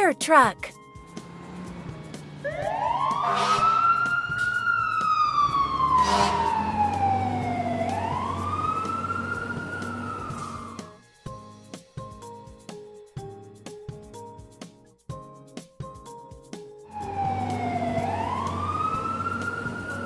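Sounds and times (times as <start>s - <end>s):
fire truck siren wailing: 2.0s - 11.0s, 16.9s - 20.0s.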